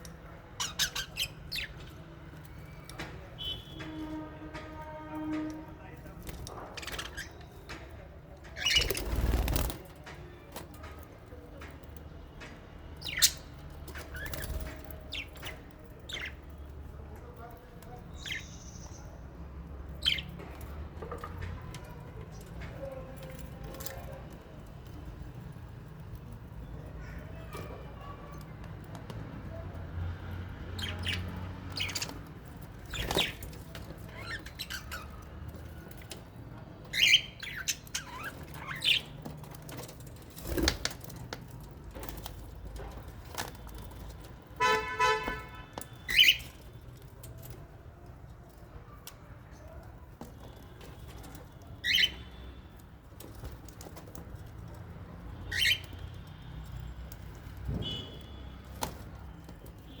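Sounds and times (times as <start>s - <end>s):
faint bird chatter: 0.0s - 5.4s, 6.0s - 28.6s, 29.5s - 44.8s, 45.6s - 60.0s
birds chirping shrilly: 36.9s - 39.2s, 45.9s - 46.6s, 51.8s - 52.6s, 55.4s - 56.1s.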